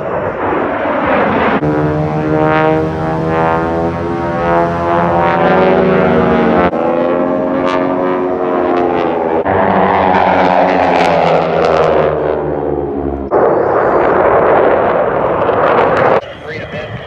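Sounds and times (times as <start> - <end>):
aircraft engine drone: 0.0 - 17.0
rushing noise: 1.1 - 8.4.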